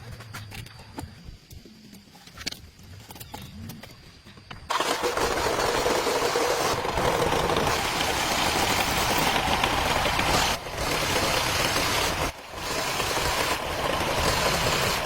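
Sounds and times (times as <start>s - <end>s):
excavator engine running: 4.7s - 15.0s.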